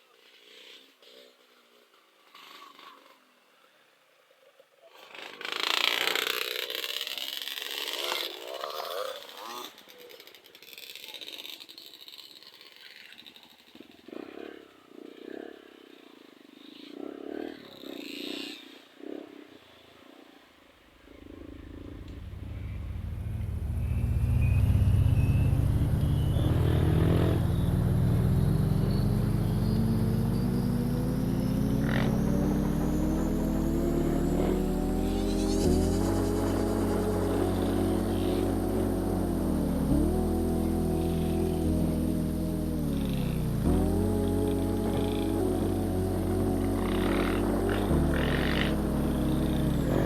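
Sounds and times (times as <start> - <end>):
motorcycle engine revving: 21.0 - 50.0.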